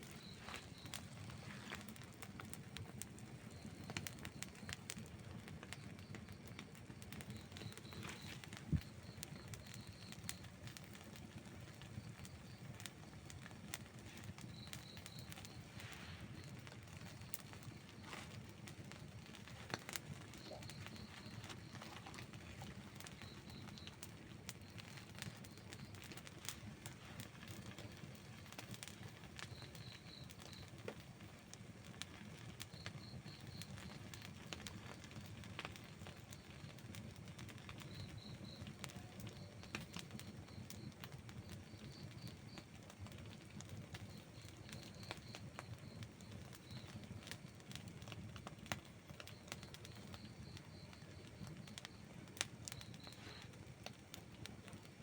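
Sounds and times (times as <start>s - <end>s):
faint high chirping: 0.0s - 2.0s, 5.6s - 10.9s, 11.7s - 30.8s
campfire crackling and popping: 0.0s - 55.0s.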